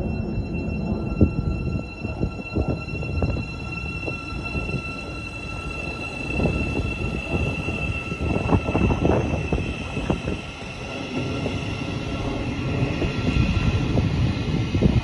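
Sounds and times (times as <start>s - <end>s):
high whine: 0.0s - 15.0s
train rumble: 0.0s - 15.0s.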